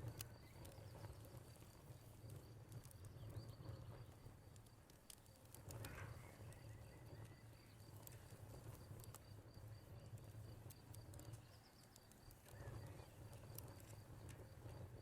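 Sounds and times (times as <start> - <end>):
wood fire crackling: 0.0 - 15.0
crickets chirping: 6.0 - 15.0.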